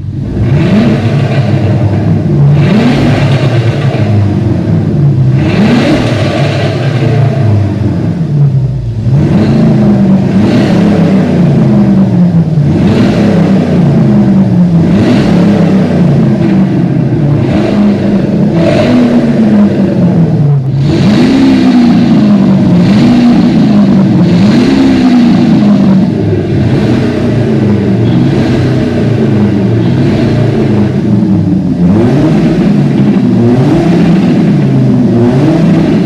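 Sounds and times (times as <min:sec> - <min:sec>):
car exhaust revving: 0:00.0 - 0:36.0.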